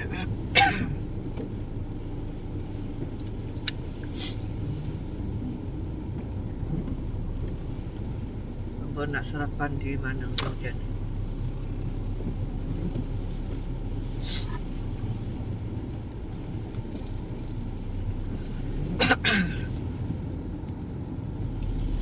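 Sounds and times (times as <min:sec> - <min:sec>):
car rumble from inside cabin: 0:00.0 - 0:22.0
person coughing: 0:00.5 - 0:01.0, 0:19.0 - 0:19.7.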